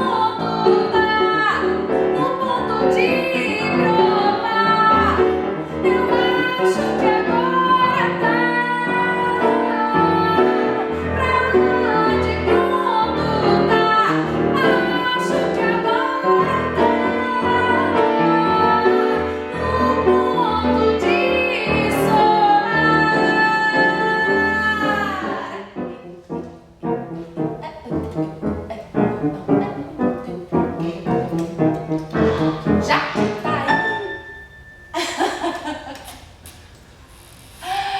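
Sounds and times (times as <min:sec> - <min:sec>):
woman singing: 0:00.0 - 0:26.1
instrumental accompaniment: 0:00.0 - 0:35.0.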